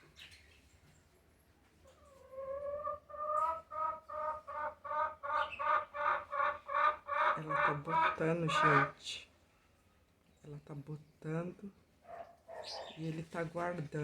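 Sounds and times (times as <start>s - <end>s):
chicken clucking: 1.8s - 9.0s.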